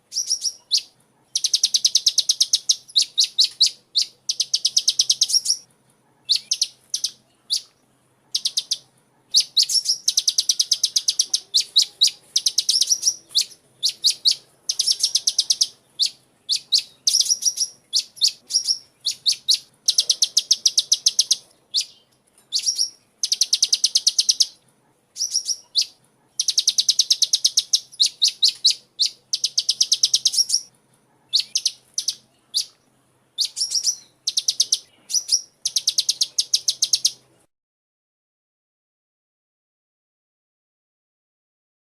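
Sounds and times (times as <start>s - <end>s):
bird chirping high sharp notes: 0.1s - 3.8s, 9.4s - 24.6s, 33.4s - 37.2s.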